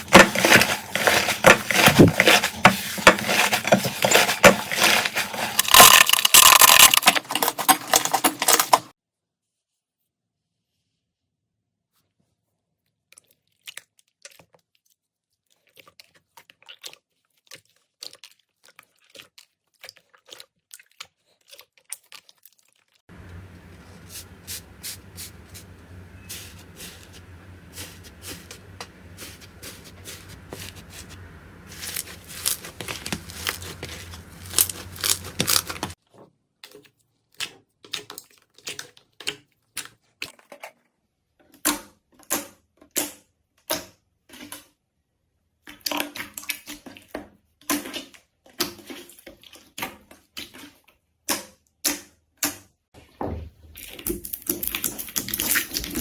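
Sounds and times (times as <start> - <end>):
slime crackling and popping: 5.6 - 7.4, 23.6 - 36.0.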